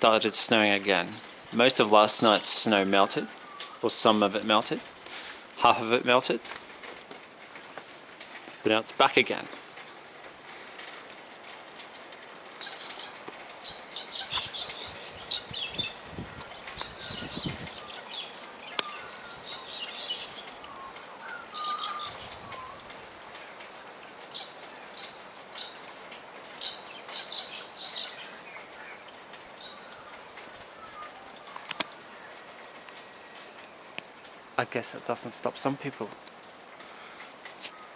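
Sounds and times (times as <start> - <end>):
small bird chirping: 12.6 - 22.9.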